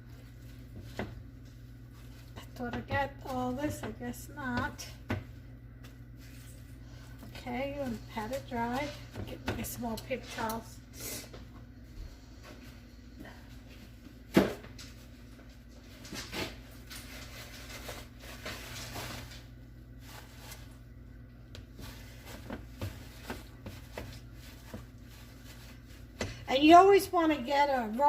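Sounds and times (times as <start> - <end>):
paper towels rustling: 5.8 - 9.1, 14.9 - 27.0.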